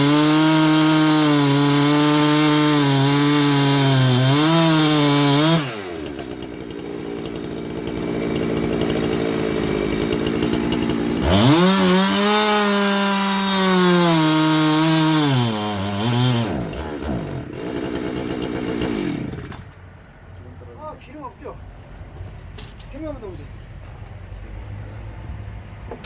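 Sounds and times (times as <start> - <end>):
chainsaw revving and idling: 0.0 - 19.8.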